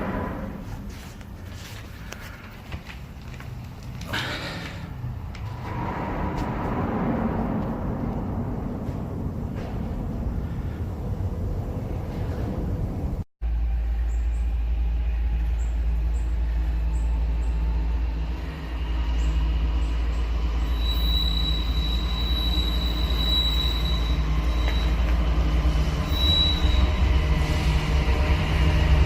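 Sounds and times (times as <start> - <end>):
freight train cars rumbling: 0.0 - 29.0
high-pitched wheel squeal: 20.3 - 27.9.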